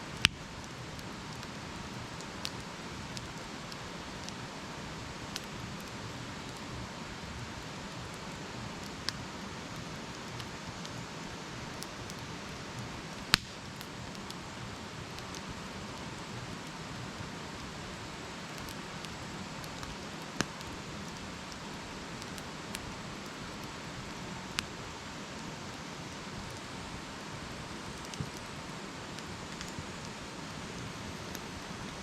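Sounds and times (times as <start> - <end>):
campfire crackling: 0.0 - 32.0
sharp pop from fire: 13.3 - 13.6.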